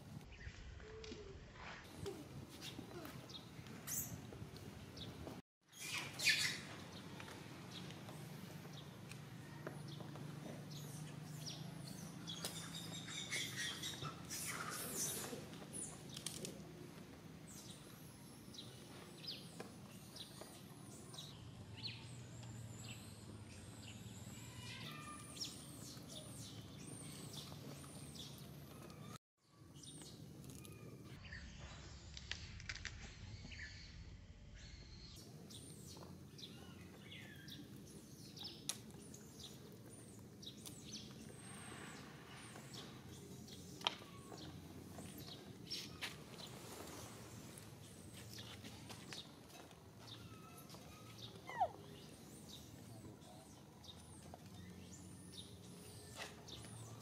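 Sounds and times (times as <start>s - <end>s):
outdoor background noise: 0.0s - 57.0s
birds chirping: 1.9s - 29.2s, 34.6s - 57.0s.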